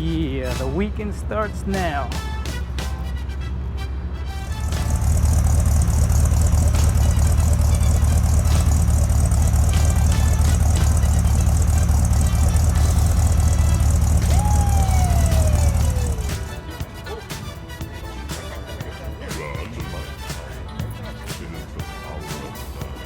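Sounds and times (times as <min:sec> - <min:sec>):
car engine rumbling: 0:00.0 - 0:19.2
falling whistle-like tone: 0:14.2 - 0:16.6.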